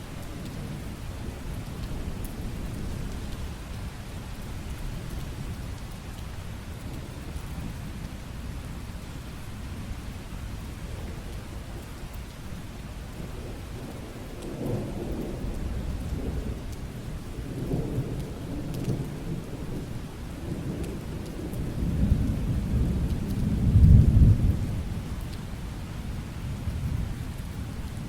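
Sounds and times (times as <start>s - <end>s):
rain falling: 0.0s - 28.0s
thunder rumbling: 13.3s - 25.2s.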